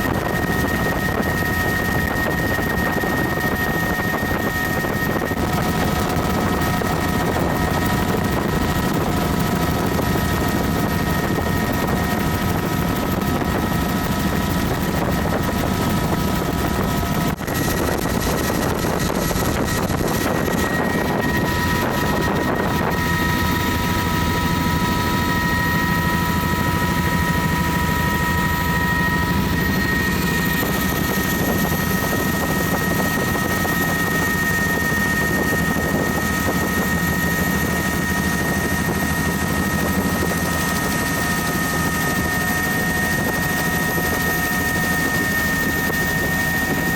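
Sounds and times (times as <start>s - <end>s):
helicopter rotor and engine: 0.0s - 46.9s
wind rush: 0.0s - 46.9s
high whine: 16.6s - 36.2s.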